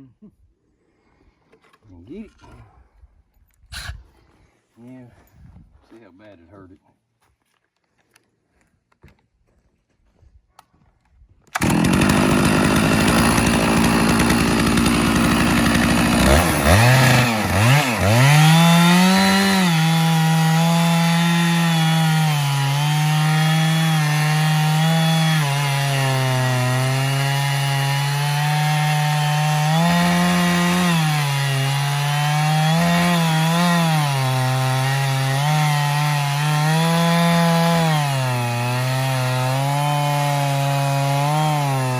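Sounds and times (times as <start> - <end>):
chainsaw cutting through log: 11.5 - 41.9.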